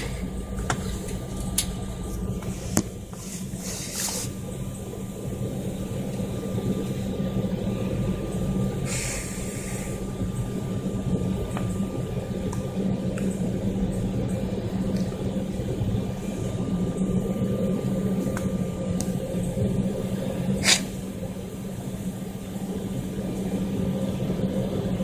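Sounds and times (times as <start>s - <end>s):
airliner engines rumbling: 0.0s - 25.0s
brief hiss: 20.6s - 21.1s.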